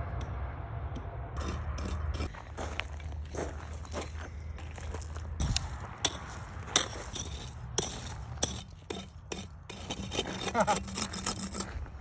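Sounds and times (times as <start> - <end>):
digging scrapes: 1.3 - 4.2, 5.4 - 12.0.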